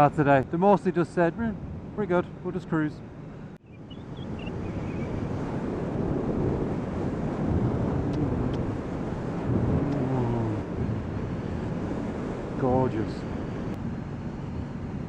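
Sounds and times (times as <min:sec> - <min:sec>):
motorcycle engine hum: 0:03.6 - 0:15.0
wind rushing over microphone: 0:03.6 - 0:15.0.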